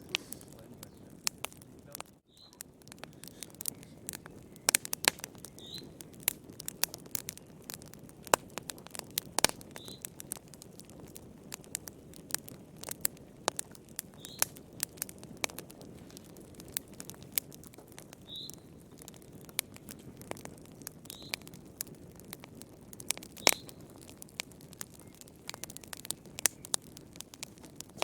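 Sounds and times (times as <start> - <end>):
wood fire crackling: 0.0 - 28.0
faint high chirp: 2.3 - 2.6.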